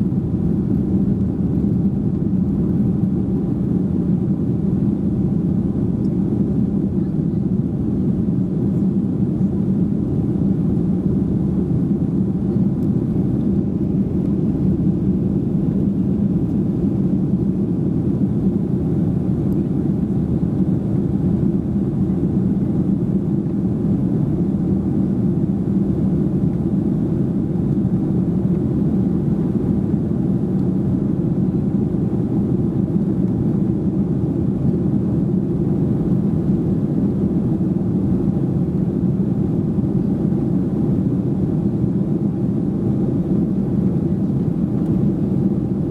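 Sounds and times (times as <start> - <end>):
airliner cabin engine rumble: 0.0 - 45.9.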